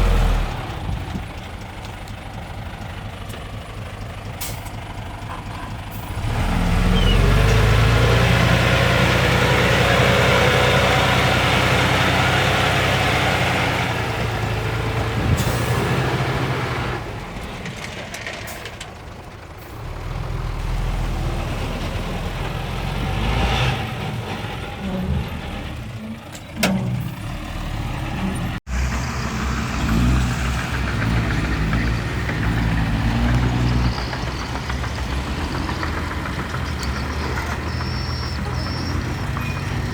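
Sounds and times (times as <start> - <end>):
heavy diesel engines working: 0.0 - 39.9.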